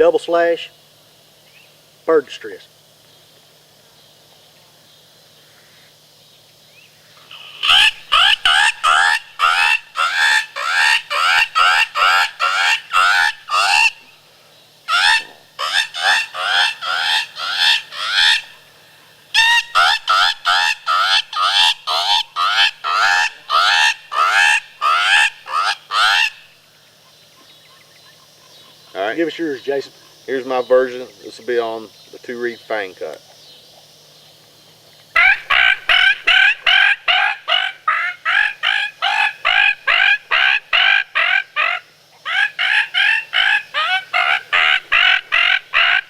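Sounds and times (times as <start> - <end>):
predator call bird distress squawks: 7.2 - 14.2, 14.8 - 18.6, 19.3 - 26.6, 35.1 - 46.0.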